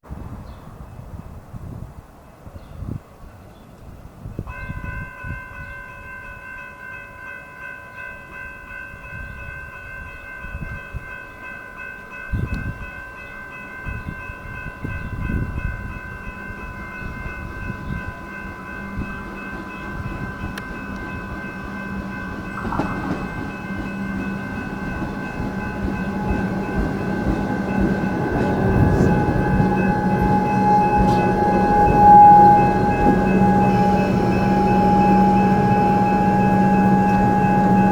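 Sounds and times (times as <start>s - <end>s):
train running noise: 12.0s - 37.9s
level crossing bell ringing: 15.9s - 37.9s.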